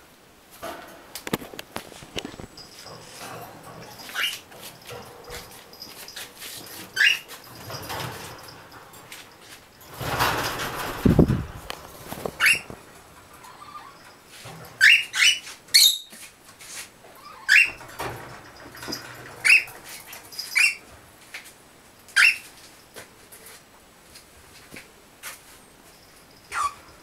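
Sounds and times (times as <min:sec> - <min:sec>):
parrots shrill calls: 0:07.0 - 0:07.3, 0:22.2 - 0:22.4, 0:26.5 - 0:26.8.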